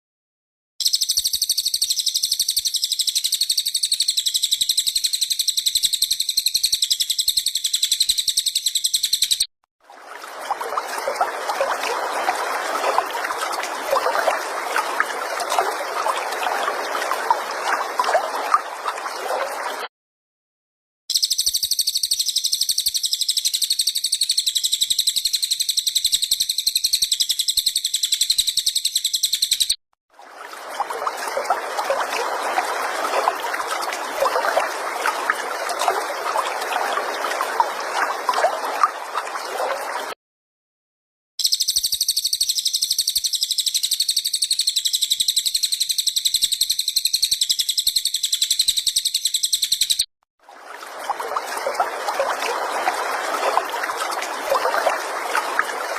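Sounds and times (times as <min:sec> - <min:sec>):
songbird rapid trill: 0:00.8 - 0:09.5, 0:21.1 - 0:29.8, 0:41.4 - 0:50.1
trickling bubbling water: 0:09.8 - 0:19.9, 0:30.2 - 0:40.2, 0:50.4 - 0:55.9.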